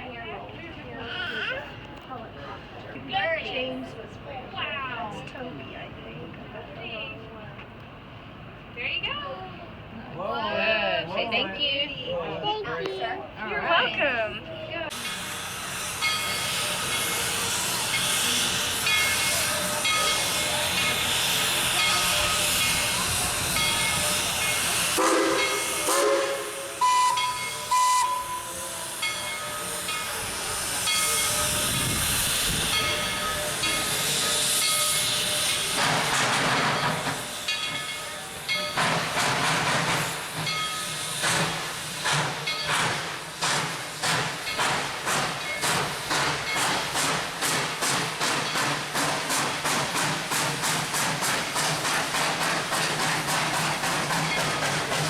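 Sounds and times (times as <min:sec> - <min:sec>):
steam locomotive hissing steam: 0:14.8 - 0:55.0
locomotive whistle: 0:15.0 - 0:32.0.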